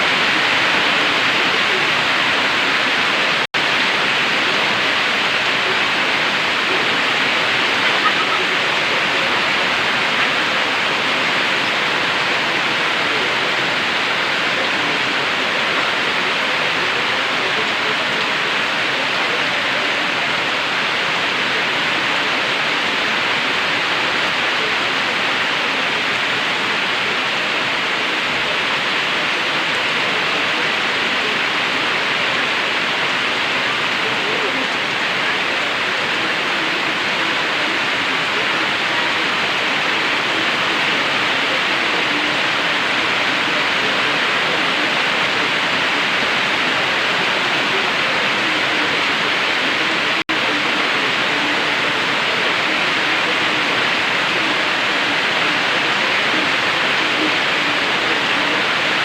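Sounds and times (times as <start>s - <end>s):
heavy rain downpour: 0.0s - 59.0s.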